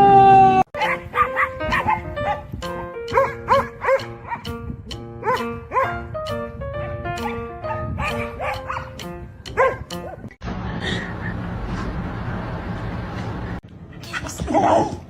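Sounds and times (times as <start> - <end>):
dog barking: 0.8 - 2.5, 3.1 - 4.5, 5.2 - 6.0, 7.2 - 10.2
background music: 0.8 - 10.3.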